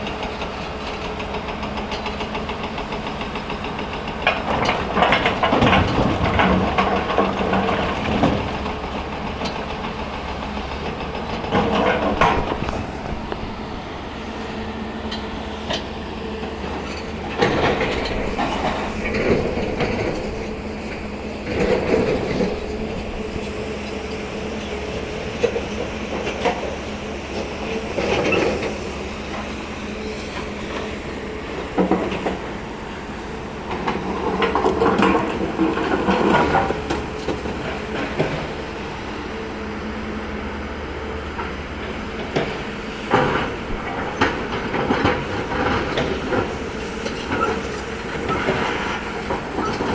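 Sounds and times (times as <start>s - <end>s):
diesel excavator engine running: 0.0s - 49.9s.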